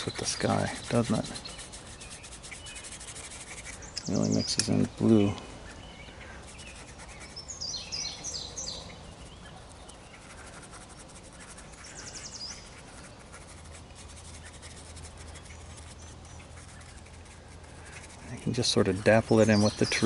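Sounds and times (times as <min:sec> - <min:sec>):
birds singing high chirps: 0:00.0 - 0:20.0
faint outdoor background noise: 0:00.0 - 0:20.0.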